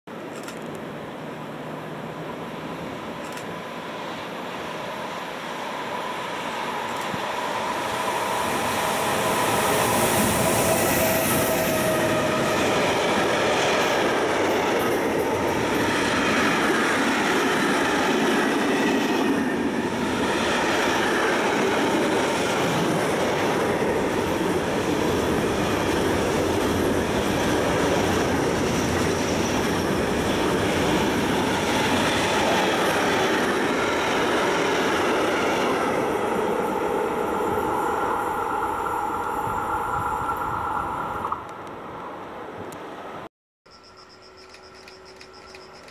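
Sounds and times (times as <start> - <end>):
freight train passing: 0.1 - 45.9
wagon wheels on rails: 43.8 - 45.9.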